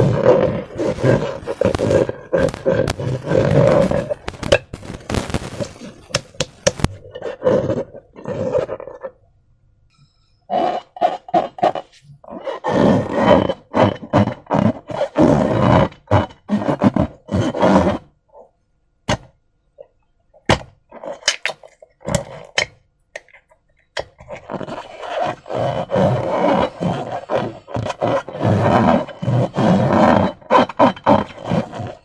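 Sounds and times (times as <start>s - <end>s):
slime squelching and popping: 0.0s - 7.1s, 20.3s - 26.2s.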